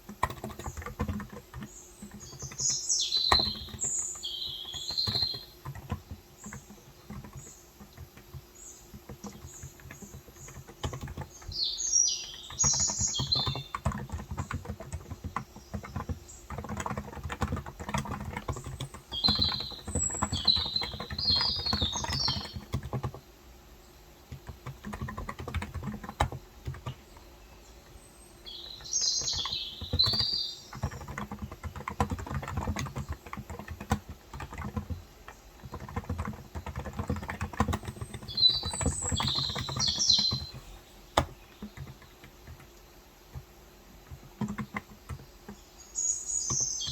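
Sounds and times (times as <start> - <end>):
keyboard typing: 0.0 - 23.3, 24.1 - 45.8, 46.4 - 46.9
birds chirping: 0.0 - 46.9.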